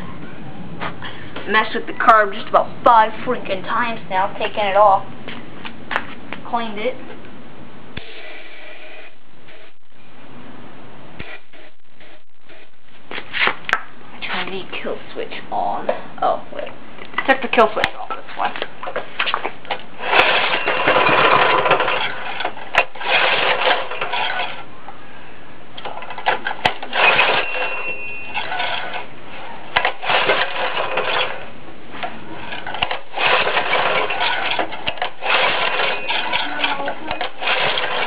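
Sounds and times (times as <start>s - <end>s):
small engine cranking: 20.0s - 24.6s, 26.2s - 29.0s, 29.8s - 31.4s, 32.6s - 38.0s.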